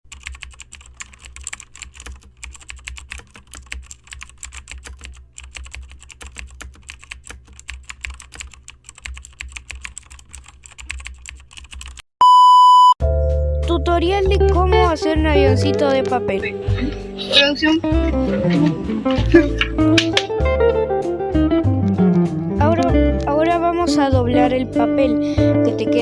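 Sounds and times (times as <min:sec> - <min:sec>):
rapid irregular clicking: 0:00.1 - 0:12.0, 0:18.1 - 0:20.3.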